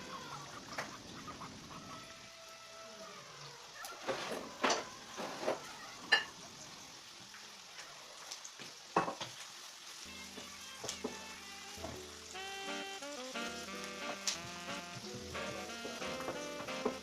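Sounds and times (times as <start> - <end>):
food sizzling in hot oil: 3.4 - 17.0.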